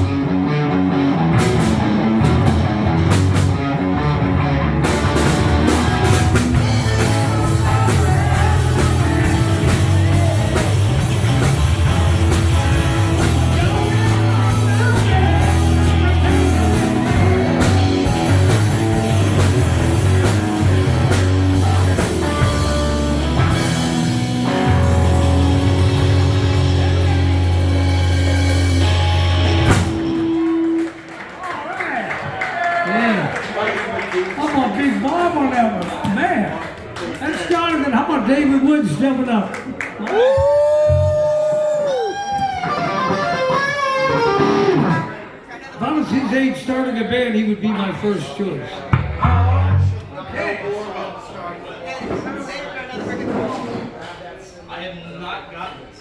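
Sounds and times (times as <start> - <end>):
distorted electric guitar: 0.0 - 30.9, 41.9 - 45.4
drum kit: 0.0 - 31.0, 40.3 - 45.2
bass guitar: 0.0 - 31.1, 40.3 - 45.4, 48.9 - 50.1
person singing: 6.7 - 10.6, 13.2 - 18.5.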